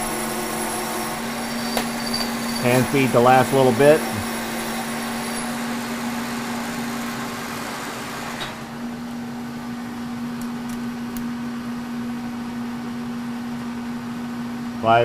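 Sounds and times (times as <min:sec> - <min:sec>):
tool cutting metal: 0:00.0 - 0:08.6
milling machine running: 0:00.0 - 0:11.0.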